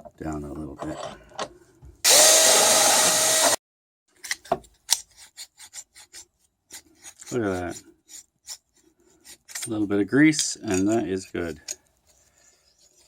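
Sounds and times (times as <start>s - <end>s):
drill grinding rivet heads: 2.1s - 3.6s.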